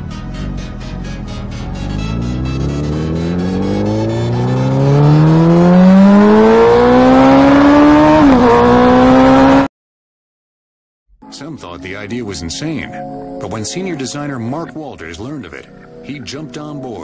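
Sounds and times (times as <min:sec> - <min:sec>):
motorcycle engine accelerating: 0:00.0 - 0:09.7.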